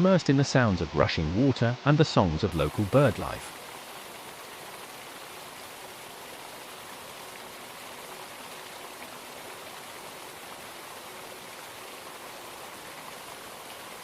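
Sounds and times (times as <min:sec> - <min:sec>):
waterfall rushing: 0:02.5 - 0:14.0.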